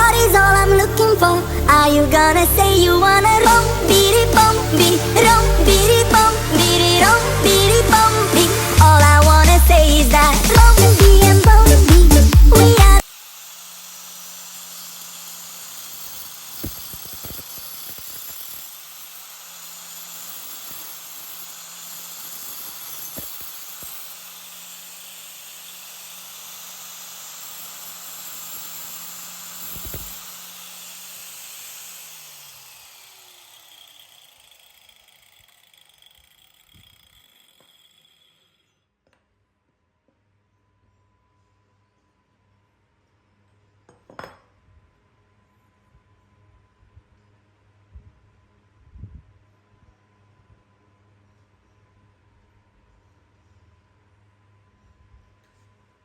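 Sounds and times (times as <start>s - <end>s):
angle grinder cutting metal: 0.0s - 38.8s.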